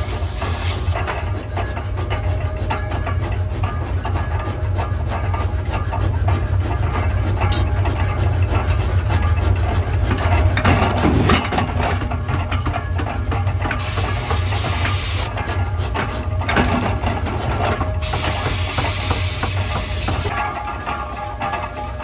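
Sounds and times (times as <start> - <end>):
burst of hissing: 0.0 - 1.0, 13.8 - 15.3, 18.0 - 20.3
machinery humming: 0.0 - 22.0.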